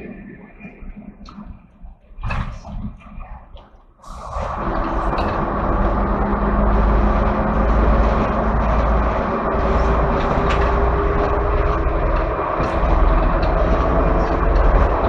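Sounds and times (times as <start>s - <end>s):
diesel engine drone: 4.0s - 15.0s
train wheel-on-rail noise: 4.0s - 15.0s.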